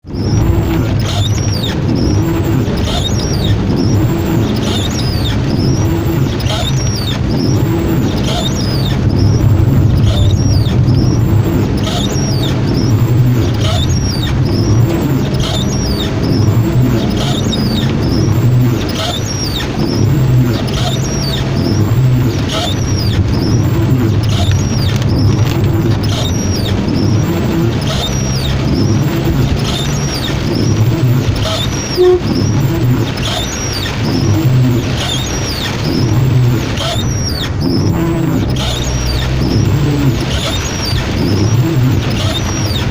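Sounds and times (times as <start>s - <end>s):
car engine and road rumble: 0.0s - 42.9s
short high squeak: 0.1s - 34.0s
rain hissing: 0.1s - 42.9s
low rhythmic swell: 9.0s - 18.6s.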